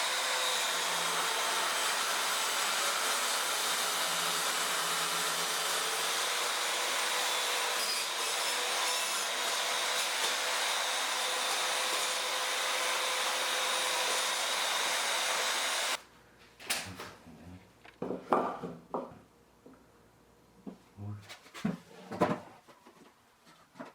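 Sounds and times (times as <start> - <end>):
electric power tool whining: 9.9 - 16.0.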